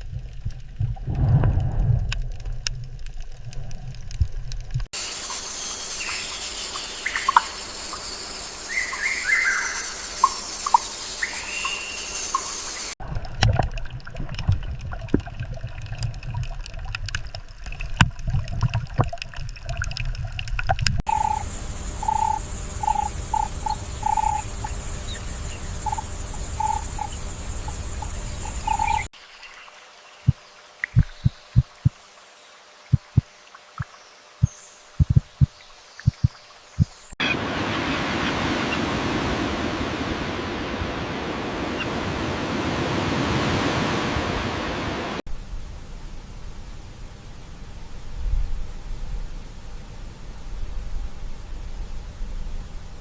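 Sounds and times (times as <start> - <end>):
low rumble: 0.0 - 4.9
low thumps: 0.7 - 2.7, 35.0 - 35.5
high steady hiss: 5.0 - 13.0, 21.1 - 53.0
birds chirping: 5.4 - 13.0, 21.1 - 32.0.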